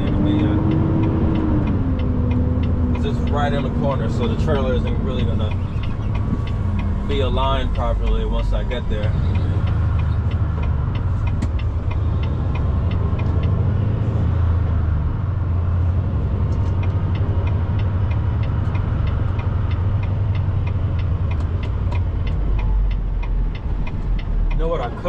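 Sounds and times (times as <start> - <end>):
diesel engine rumbling: 0.0 - 25.0.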